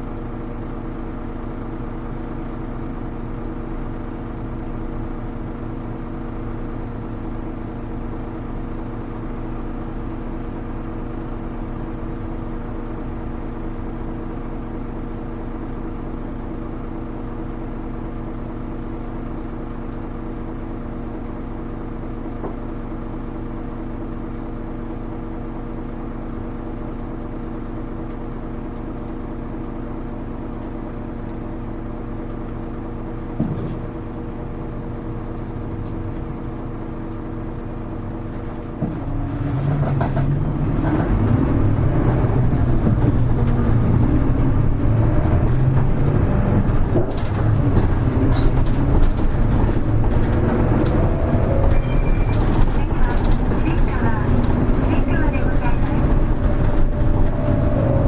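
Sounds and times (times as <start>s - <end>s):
bus diesel engine: 0.0s - 58.0s.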